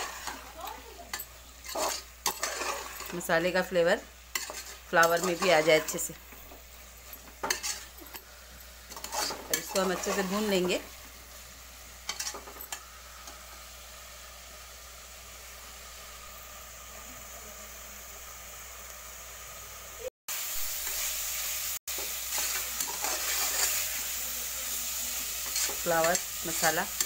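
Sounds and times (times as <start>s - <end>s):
metal spoon scraping a pot: 0.0s - 3.3s, 4.3s - 6.2s, 7.0s - 8.3s, 8.9s - 10.8s, 12.1s - 12.8s, 22.3s - 24.0s
vegetables sizzling in a pot: 0.0s - 27.0s.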